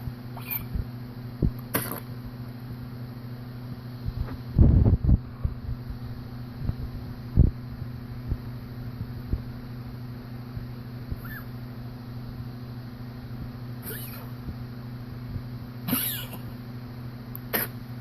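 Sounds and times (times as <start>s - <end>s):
dog coughing: 1.7s - 2.1s, 11.2s - 11.5s, 13.8s - 14.4s, 15.8s - 16.5s, 17.5s - 17.8s.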